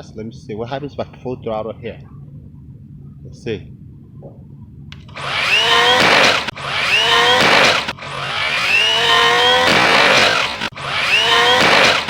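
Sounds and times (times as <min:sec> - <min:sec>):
electric motor whining: 0:05.0 - 0:12.0.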